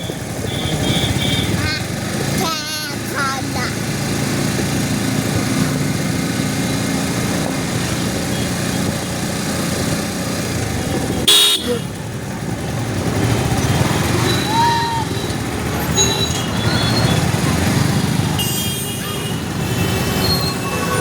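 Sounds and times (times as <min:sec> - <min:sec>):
car horn beep: 0:00.0 - 0:01.6, 0:11.2 - 0:11.9, 0:18.4 - 0:21.0
vehicle engines running: 0:00.0 - 0:21.0.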